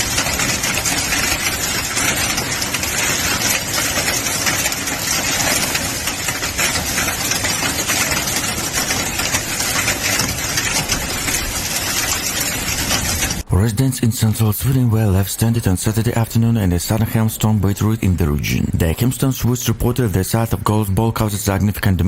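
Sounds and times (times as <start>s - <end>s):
heavy rain downpour: 0.0s - 13.5s.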